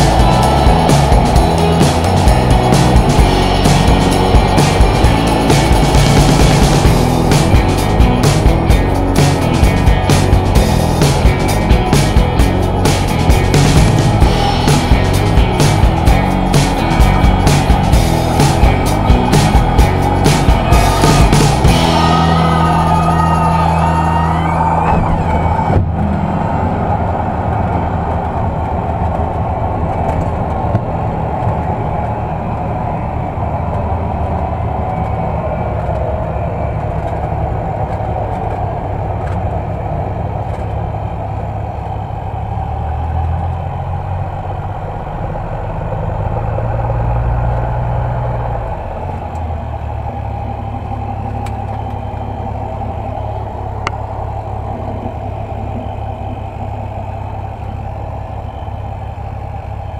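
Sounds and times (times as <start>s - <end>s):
light aircraft piston engine: 26.5s - 59.9s.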